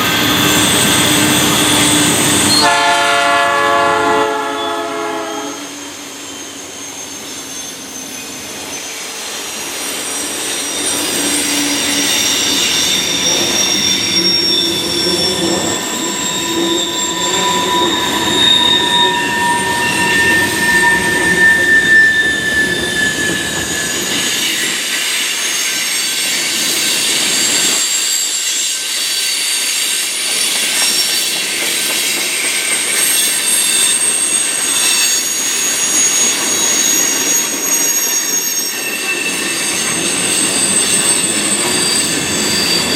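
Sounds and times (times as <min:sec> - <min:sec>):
freight train rumble: 0:00.0 - 0:42.9
train wheels squealing on rail: 0:00.0 - 0:42.9.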